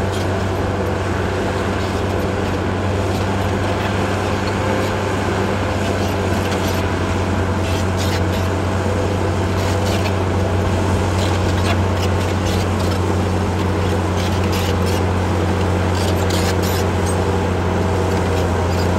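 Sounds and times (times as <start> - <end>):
bulldozer diesel engine running: 0.0 - 18.9.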